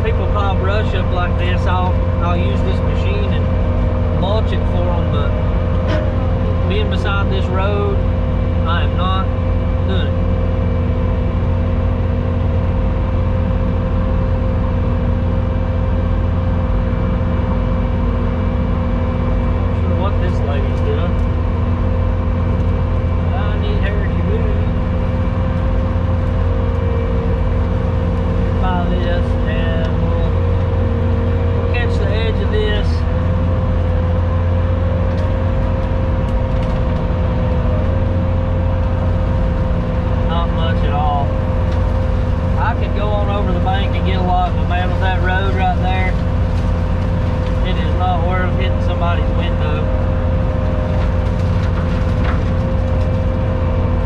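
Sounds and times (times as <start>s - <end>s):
skid steer engine droning: 0.0s - 54.0s
steady whine: 0.0s - 54.0s.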